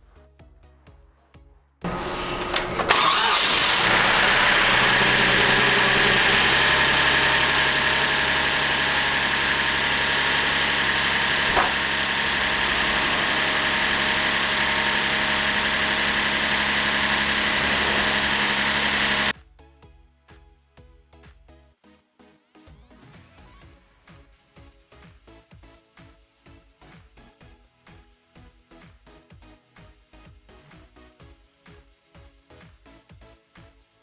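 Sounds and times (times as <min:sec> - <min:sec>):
car engine starting and idling: 0:01.9 - 0:19.3.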